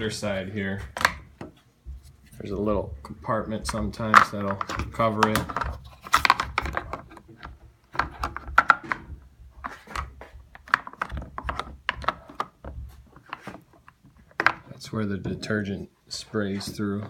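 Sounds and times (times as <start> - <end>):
plastic clicks and taps: 3.6 - 14.7.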